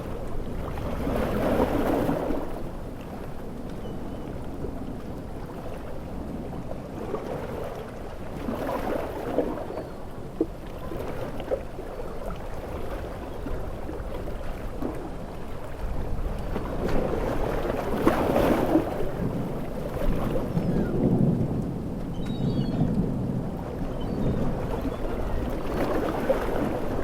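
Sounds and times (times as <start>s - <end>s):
waves rushing: 0.0s - 3.7s, 4.4s - 27.0s
wind: 0.0s - 27.0s.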